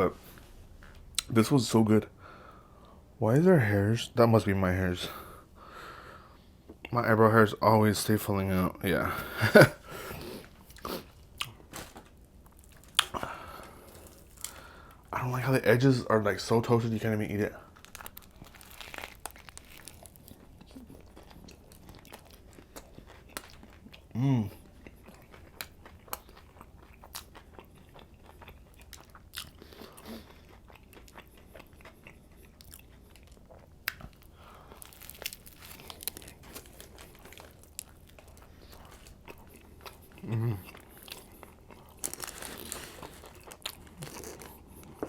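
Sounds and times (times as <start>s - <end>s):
chewing and crunching sandwich: 9.3s - 15.2s, 16.8s - 45.0s.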